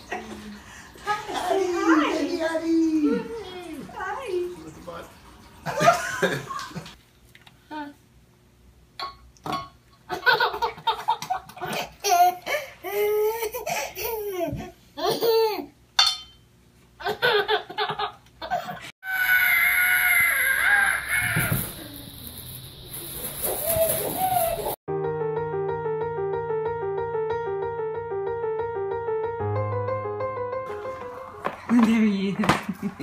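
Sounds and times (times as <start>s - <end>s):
child laughing and squealing: 18.5s - 22.1s, 23.4s - 24.8s.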